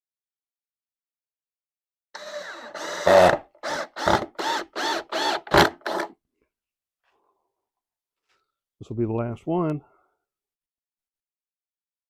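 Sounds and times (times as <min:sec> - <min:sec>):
power drill driving screw into wood: 0:02.2 - 0:06.2.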